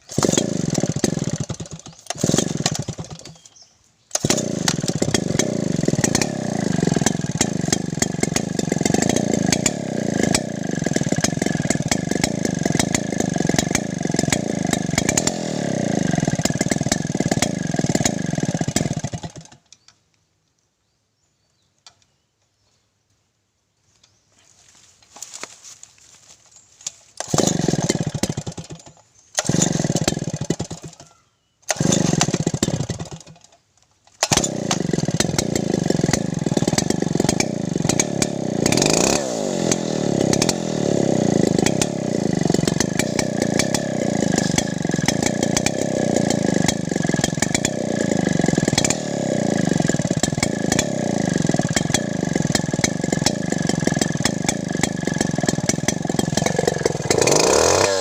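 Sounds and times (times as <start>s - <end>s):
chainsaw engine starting and running: 0.0s - 19.9s, 26.8s - 58.0s.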